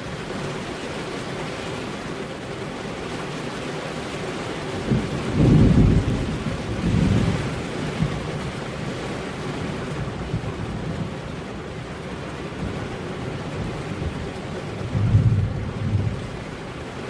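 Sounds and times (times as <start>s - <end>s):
steady rain: 0.0s - 17.0s
thunder rumbling: 4.8s - 17.0s.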